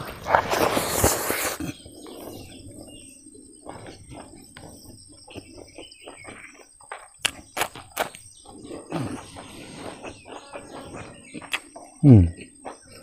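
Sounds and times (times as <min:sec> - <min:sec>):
faint birds chirping: 0:00.0 - 0:13.0
chewing and lip-smacking: 0:03.6 - 0:13.0.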